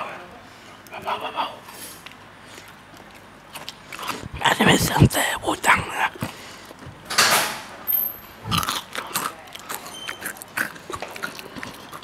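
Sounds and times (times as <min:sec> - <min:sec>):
chewing with wet smacks: 0:02.0 - 0:06.8, 0:08.5 - 0:12.0.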